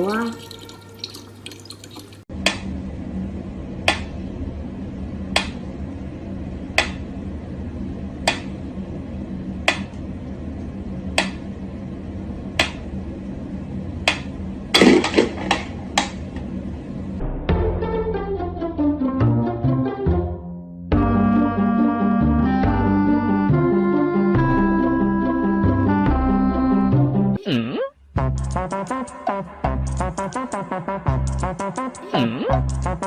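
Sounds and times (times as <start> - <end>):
steady low hum: 2.3 - 17.5.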